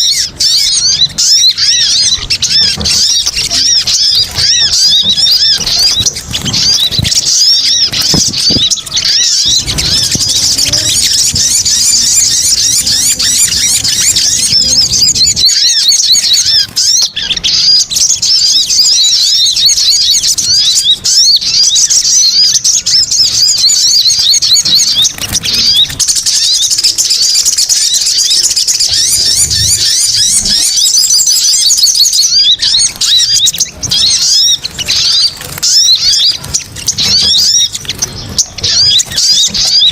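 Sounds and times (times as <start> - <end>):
small birds twittering: 0.0 - 39.9.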